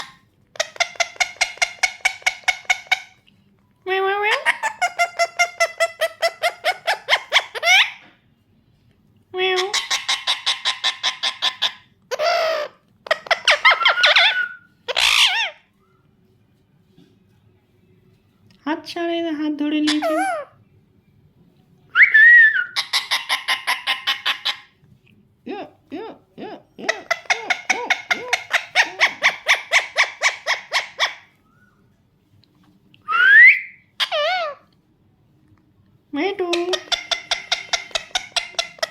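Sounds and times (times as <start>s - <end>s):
parakeet chattering calls: 0.0s - 3.2s, 4.3s - 8.0s, 9.6s - 15.6s, 22.7s - 24.8s, 26.8s - 31.4s, 33.9s - 34.6s, 36.5s - 38.9s
parakeet squawk: 0.0s - 3.2s, 4.3s - 8.1s, 9.5s - 15.7s, 19.8s - 20.6s, 22.5s - 24.8s, 26.8s - 31.7s, 33.1s - 34.7s, 36.4s - 38.9s
parakeet whistled calls: 9.8s - 16.0s, 22.0s - 24.7s, 26.9s - 31.8s, 33.1s - 34.6s
parakeet wavering screech: 13.3s - 15.7s, 33.1s - 34.6s
parakeet rising whistle: 33.1s - 33.8s.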